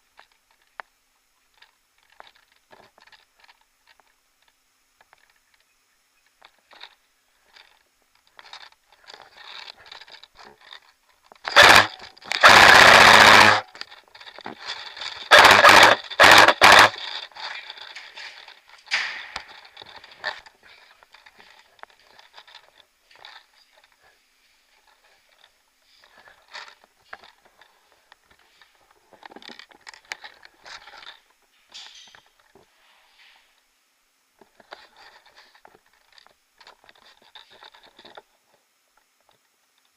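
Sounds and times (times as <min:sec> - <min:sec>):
rustling: 0:06.3 - 0:33.7
footsteps: 0:06.5 - 0:33.5.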